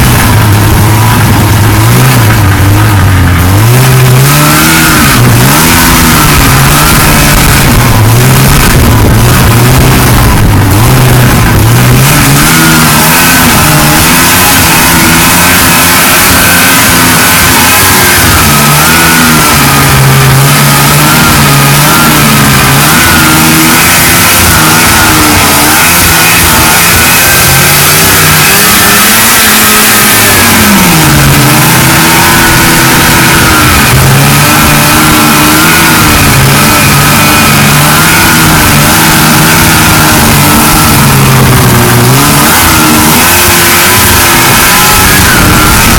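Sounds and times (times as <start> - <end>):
snowmobile engine running: 0.0 - 45.9.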